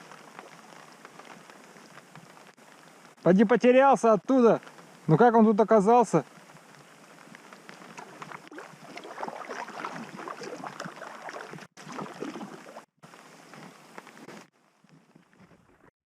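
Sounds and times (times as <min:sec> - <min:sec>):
river water splashing: 0:00.0 - 0:02.6, 0:07.1 - 0:14.0.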